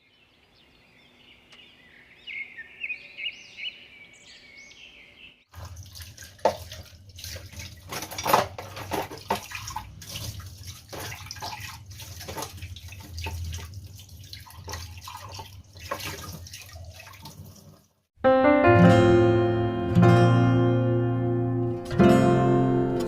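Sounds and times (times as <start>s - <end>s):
tap water running and splashing: 5.5s - 18.1s
dishes clinking and knocking: 7.9s - 9.5s.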